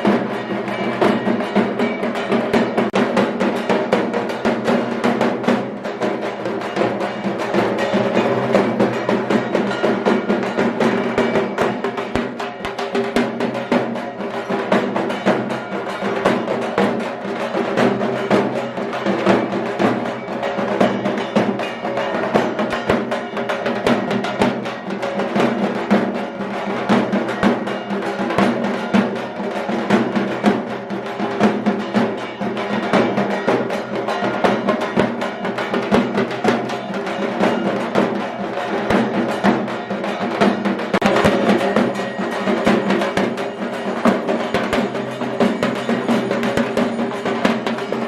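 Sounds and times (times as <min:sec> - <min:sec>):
fast drumming: 0:00.0 - 0:48.0.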